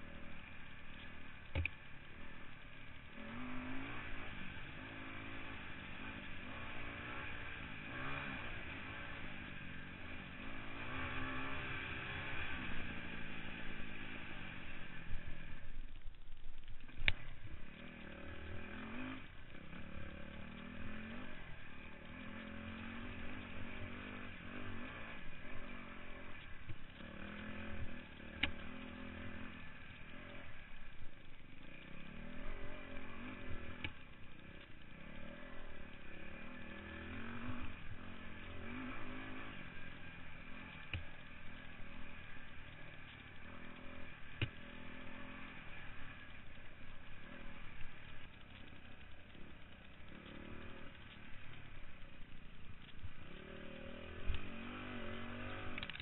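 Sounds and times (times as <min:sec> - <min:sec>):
dirt bike engine revving: 0:00.0 - 0:15.8, 0:16.8 - 0:56.0
sharp clicks: 0:46.1 - 0:56.0.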